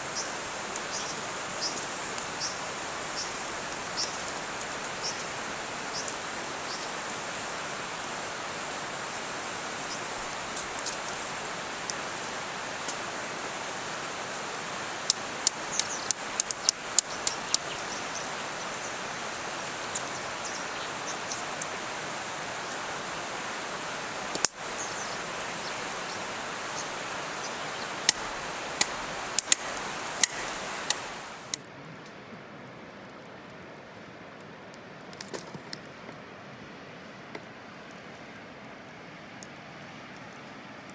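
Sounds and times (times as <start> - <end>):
rushing hiss: 0.0 - 31.6
campfire crackling and popping: 0.0 - 40.9.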